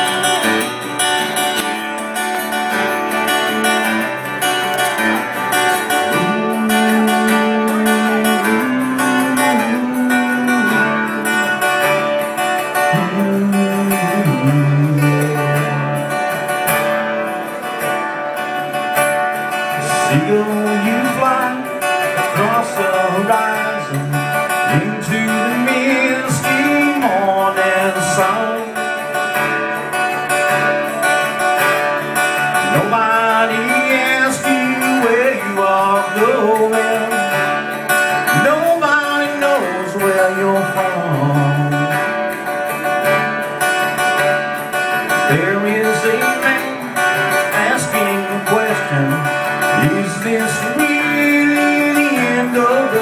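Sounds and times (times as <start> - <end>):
acoustic guitar picked and strummed: 0.0 - 53.0.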